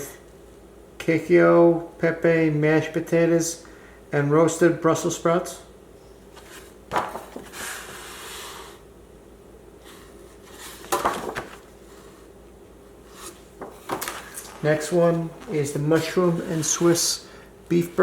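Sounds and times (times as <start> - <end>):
packages knocking: 6.9 - 7.5, 10.9 - 11.7, 13.6 - 15.7.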